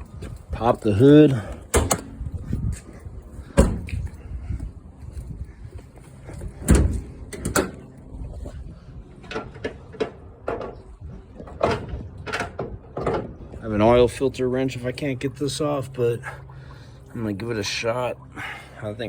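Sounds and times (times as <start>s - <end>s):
car hood knocks and clunks: 3.6s - 3.9s.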